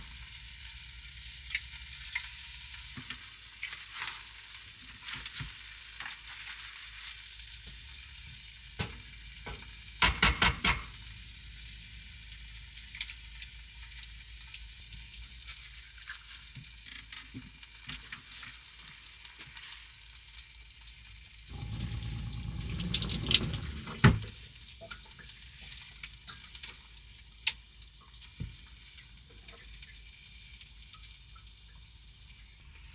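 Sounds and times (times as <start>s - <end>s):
food sizzling in a frying pan: 0.0s - 32.9s
tap running into a sink: 8.8s - 11.2s, 21.5s - 25.0s.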